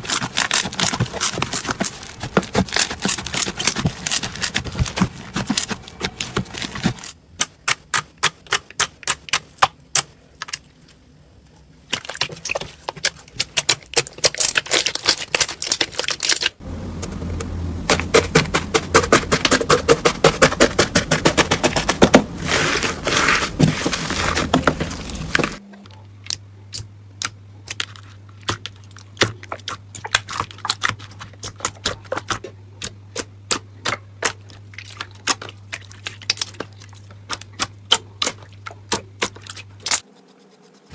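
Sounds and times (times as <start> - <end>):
steady low hum: 16.6 - 27.6.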